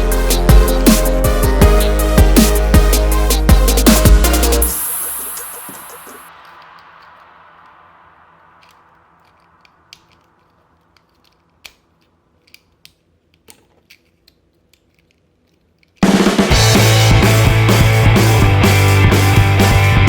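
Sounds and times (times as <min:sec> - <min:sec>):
loud rock music: 0:00.0 - 0:05.9, 0:16.0 - 0:20.0
plastic toy parts clicking: 0:08.6 - 0:16.0.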